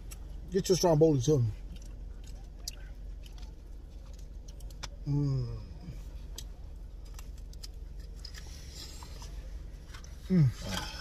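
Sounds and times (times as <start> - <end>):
person chewing food: 1.6 - 5.1, 5.9 - 11.0
man humming mmm: 10.3 - 11.0.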